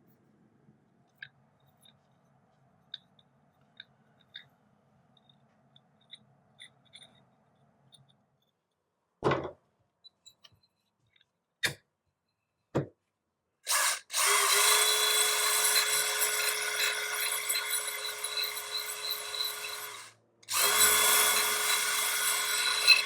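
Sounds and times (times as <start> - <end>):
small power drill running: 13.7 - 23.0.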